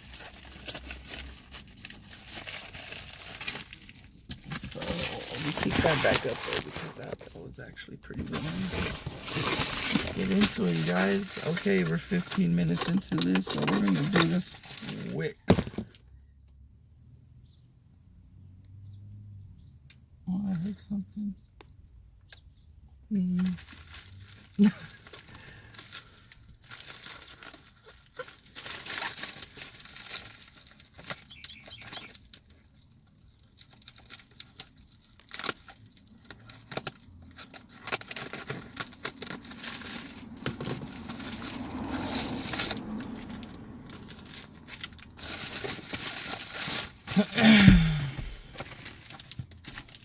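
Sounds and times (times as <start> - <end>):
paper rustling: 0.0 - 7.2, 8.2 - 15.2
packaging tearing and crumpling: 0.0 - 7.3, 8.2 - 15.7, 23.4 - 50.0.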